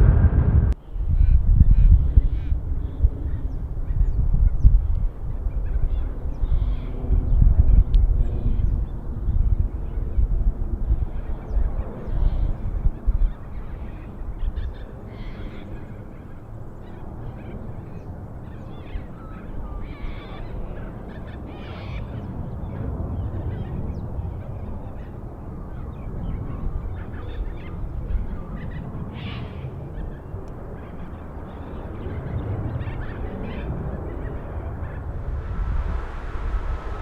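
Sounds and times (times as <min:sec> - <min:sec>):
steady low rumble: 0:00.0 - 0:12.0, 0:33.7 - 0:37.0.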